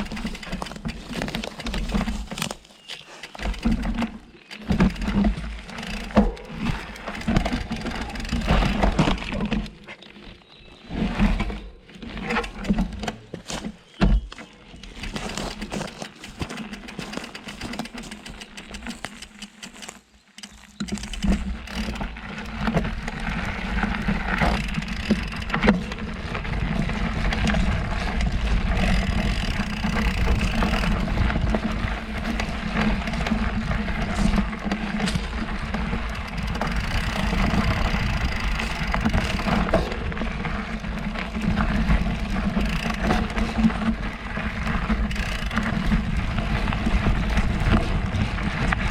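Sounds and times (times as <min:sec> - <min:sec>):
rattling clicks: 0:00.0 - 0:09.7, 0:14.8 - 0:26.0, 0:28.8 - 0:32.6, 0:35.0 - 0:40.0, 0:41.1 - 0:43.9
bike rolling over dirt: 0:00.0 - 0:48.9.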